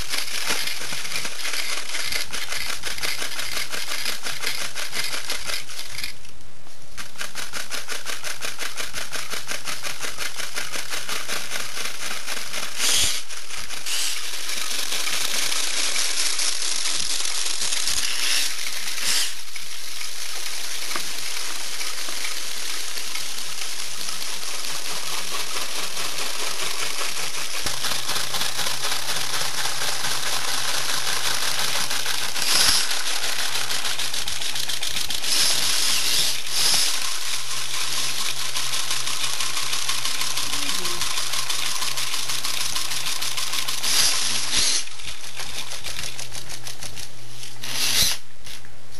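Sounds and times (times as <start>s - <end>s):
rapid fine mechanical ticking: 0.0s - 6.2s, 7.0s - 48.2s
steady hiss: 10.1s - 45.0s, 47.2s - 48.7s.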